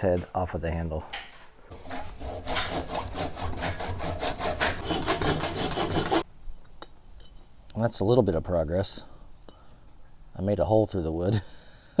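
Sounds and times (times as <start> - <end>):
tool rasping through wood: 1.7 - 6.2.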